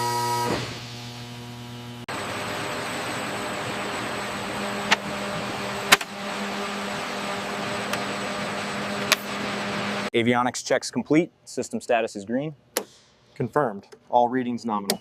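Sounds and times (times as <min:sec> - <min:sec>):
machinery hum and whir: 0:00.0 - 0:10.1.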